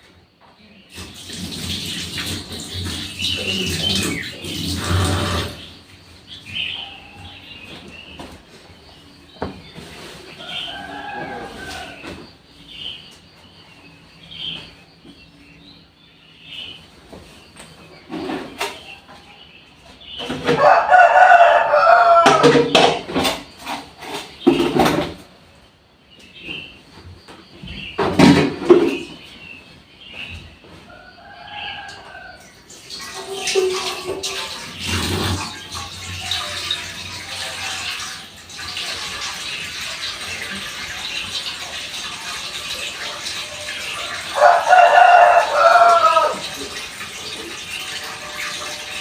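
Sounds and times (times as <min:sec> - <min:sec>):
birds chirping: 0:00.0 - 0:37.8
rustling scuffling noise: 0:07.2 - 0:12.4, 0:29.0 - 0:31.2
rooster crowing: 0:10.4 - 0:12.2, 0:20.5 - 0:22.6, 0:30.9 - 0:32.6, 0:44.0 - 0:46.7.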